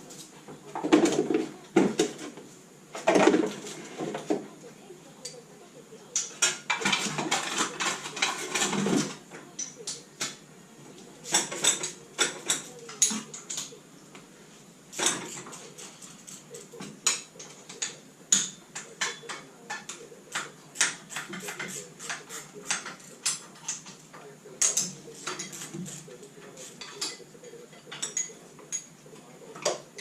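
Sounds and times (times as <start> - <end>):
metal tools clinking and knocking: 6.2 - 10.0.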